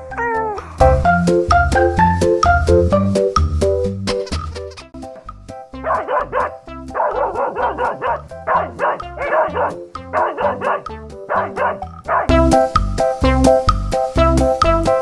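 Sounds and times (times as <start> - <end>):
background music: 0.0 - 15.0
dog barking: 5.8 - 12.4.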